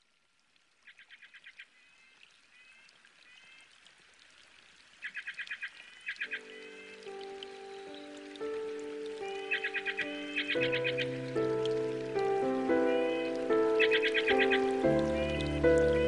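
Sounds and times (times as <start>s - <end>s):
birds calling: 5.0s - 16.0s
soft background music chords: 6.3s - 16.0s.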